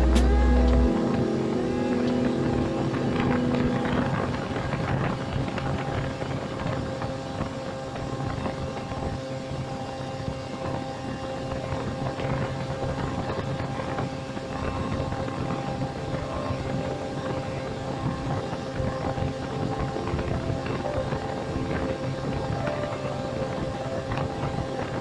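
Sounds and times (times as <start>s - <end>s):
music: 0.0s - 5.9s, 15.2s - 25.0s
small aircraft engine drone: 0.0s - 25.0s.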